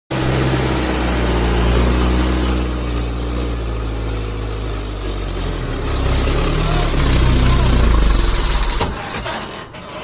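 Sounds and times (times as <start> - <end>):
heavy truck engine labouring: 0.1 - 10.0.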